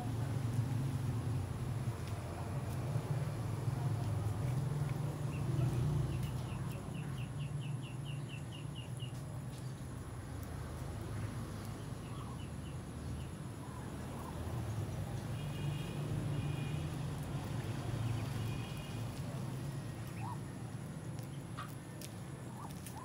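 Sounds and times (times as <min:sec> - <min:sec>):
bird chirping: 0:05.3 - 0:09.7, 0:20.0 - 0:20.5.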